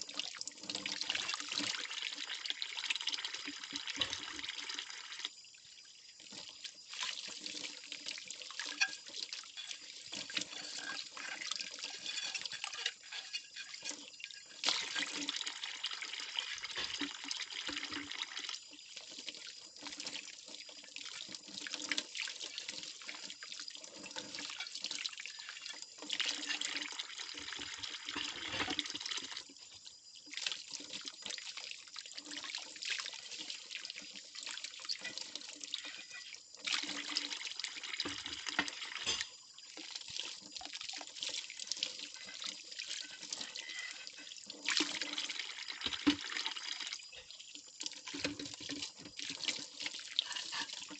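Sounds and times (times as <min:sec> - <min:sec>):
water splashing and trickling: 0:00.0 - 0:50.9
plates clinking: 0:10.4 - 0:14.0.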